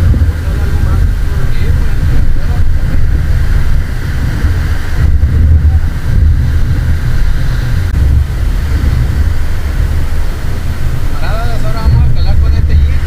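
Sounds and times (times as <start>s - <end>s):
heavy surf: 0.0s - 13.0s
wind buffeting microphone: 0.0s - 13.0s.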